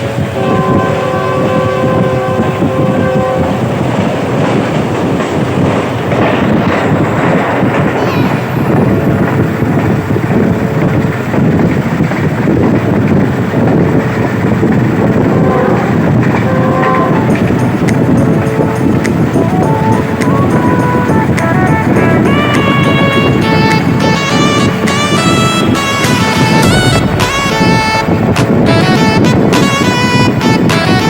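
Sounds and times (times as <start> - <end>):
train wheels rumbling on track: 0.0 - 31.0.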